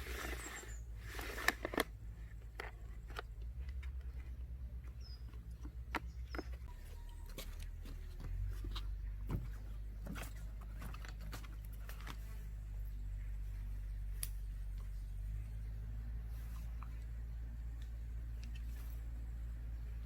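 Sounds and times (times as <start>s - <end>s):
faint bird chirps: 6.1s - 7.7s.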